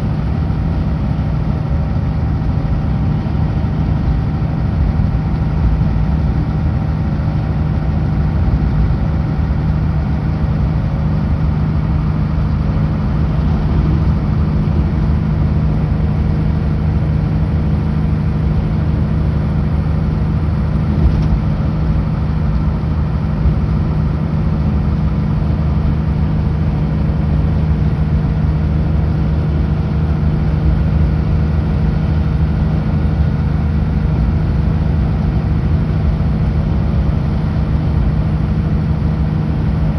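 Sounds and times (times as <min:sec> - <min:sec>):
road and tyre noise: 0:00.0 - 0:39.9
truck diesel engine drone: 0:00.0 - 0:39.9.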